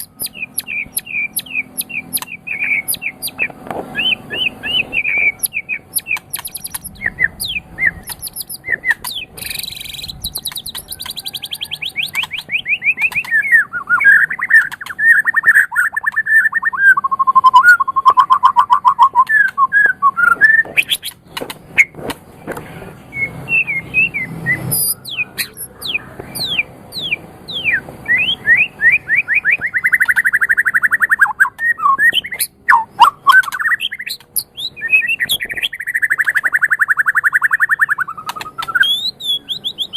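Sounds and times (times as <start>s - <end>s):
bird singing varied song: 0.0s - 39.9s.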